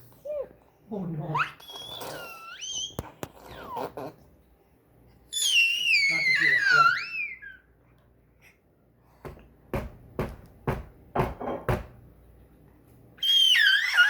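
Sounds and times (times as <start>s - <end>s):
sharp knocks: 9.3s - 12.0s.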